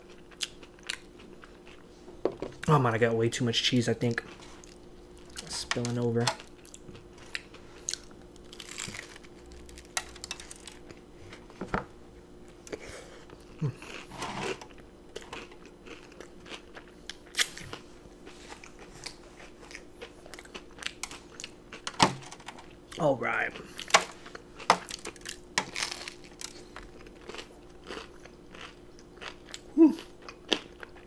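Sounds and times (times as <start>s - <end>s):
crunchy chewing: 0.0s - 1.9s, 6.4s - 11.1s, 12.6s - 21.9s, 22.6s - 31.0s.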